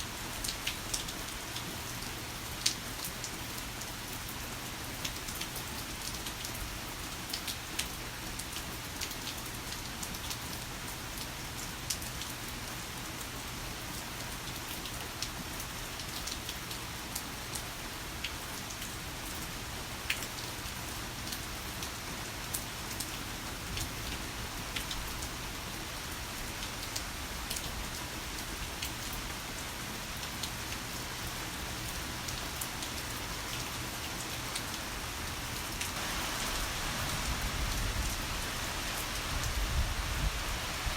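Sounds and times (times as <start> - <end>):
heavy rain falling: 19.3 - 40.9.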